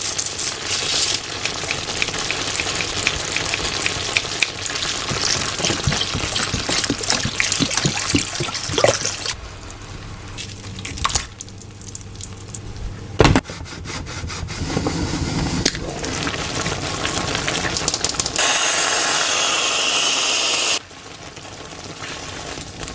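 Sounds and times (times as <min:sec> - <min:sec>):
cooking crackling and clattering: 0:00.0 - 0:13.6, 0:14.7 - 0:18.5, 0:20.8 - 0:22.9
water rushing from tap: 0:00.8 - 0:09.4.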